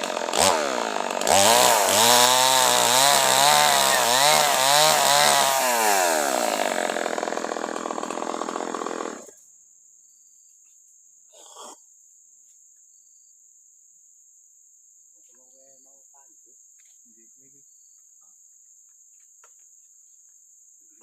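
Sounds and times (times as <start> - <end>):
chainsaw engine running: 0.0 - 9.3.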